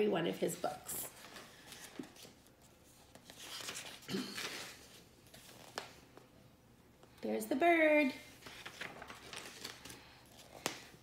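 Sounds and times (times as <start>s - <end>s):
paper pages rustling: 0.5s - 6.3s, 8.3s - 11.0s.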